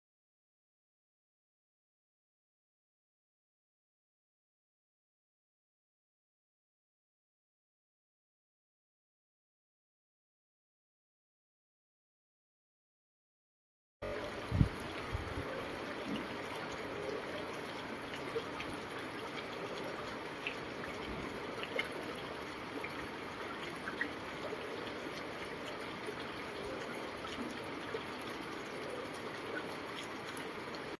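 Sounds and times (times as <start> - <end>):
running water rushing: 14.0 - 31.0
small water splashes: 14.0 - 31.0
faint ticks: 14.1 - 31.0.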